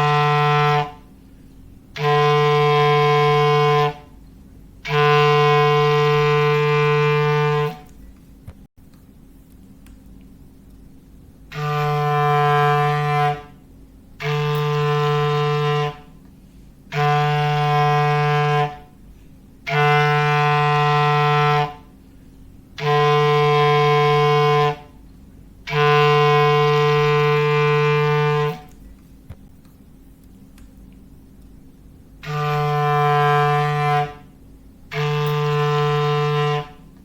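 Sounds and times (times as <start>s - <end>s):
foghorn blasts: 0.0s - 1.2s, 1.9s - 8.0s, 11.5s - 22.1s, 22.7s - 25.0s, 25.6s - 28.8s, 32.2s - 37.0s.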